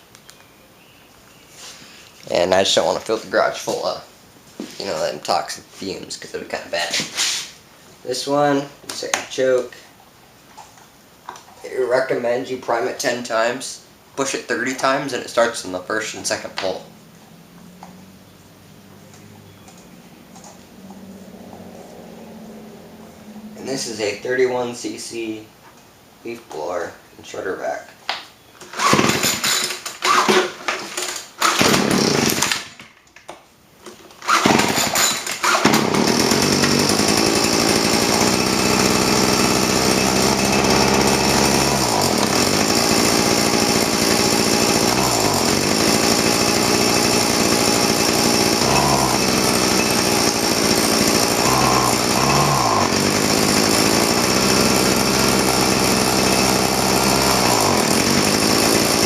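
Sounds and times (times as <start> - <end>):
leaf blower engine starting and running: 18.9 - 24.2, 28.8 - 30.3, 31.0 - 32.6, 34.2 - 59.0.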